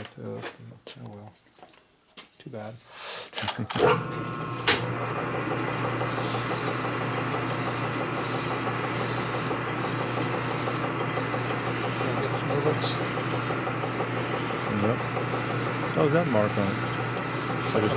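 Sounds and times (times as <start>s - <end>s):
machine hum: 3.8s - 17.9s
abrasive stone rasping on metal: 6.0s - 17.9s.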